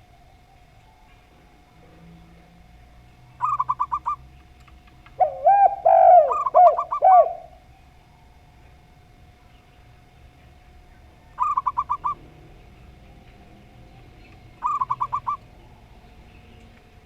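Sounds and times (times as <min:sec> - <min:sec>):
dove cooing: 0:03.3 - 0:04.3, 0:05.1 - 0:08.3, 0:11.3 - 0:12.8, 0:14.4 - 0:16.4.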